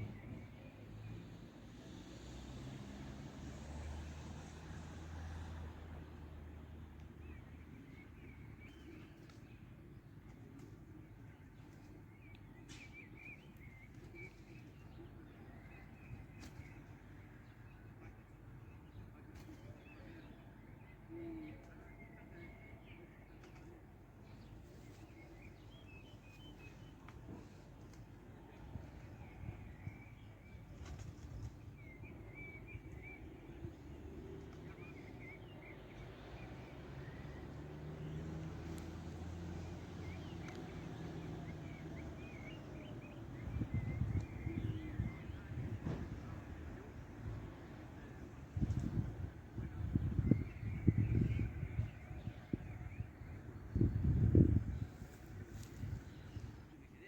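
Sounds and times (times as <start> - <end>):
outdoor background noise: 0.0 - 57.0.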